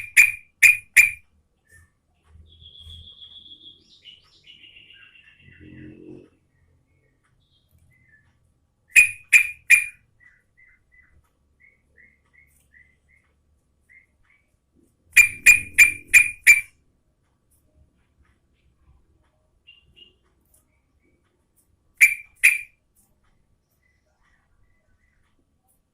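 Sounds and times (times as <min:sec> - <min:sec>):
bird calling sharp notes: 0:00.0 - 0:01.2, 0:08.9 - 0:13.2, 0:15.2 - 0:16.8, 0:22.0 - 0:22.8
faint short bird chirps: 0:08.9 - 0:13.3, 0:15.2 - 0:16.7, 0:22.0 - 0:22.8.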